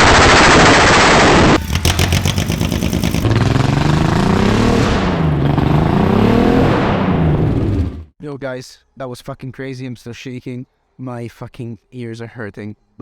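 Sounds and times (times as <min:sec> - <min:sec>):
rapid engine pops: 0:01.5 - 0:03.3
unmuffled engine revving: 0:01.5 - 0:08.0.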